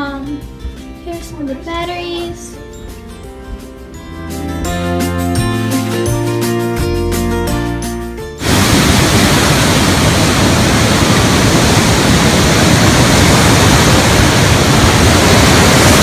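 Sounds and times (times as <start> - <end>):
water rushing down rock slide: 8.4 - 16.0.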